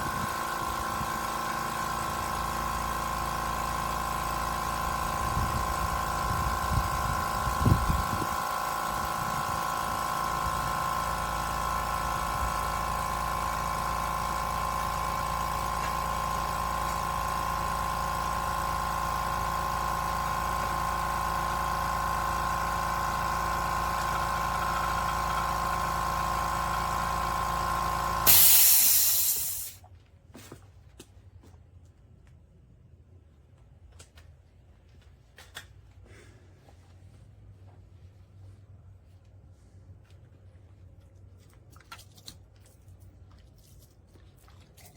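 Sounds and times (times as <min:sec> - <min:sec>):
air compressor humming: 0:00.0 - 0:29.9
air hissing burst: 0:28.2 - 0:29.8.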